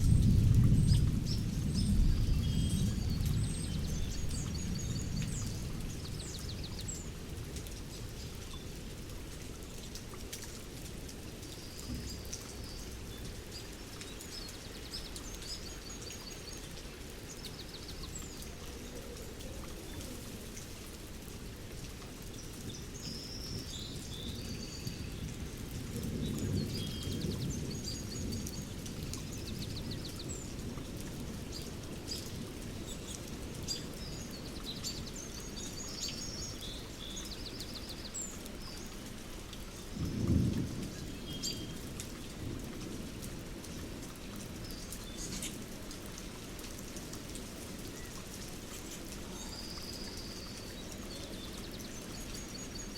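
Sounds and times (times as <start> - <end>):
thunder rumbling: 0.0 - 7.2, 40.0 - 43.2
steady rain: 0.0 - 52.9.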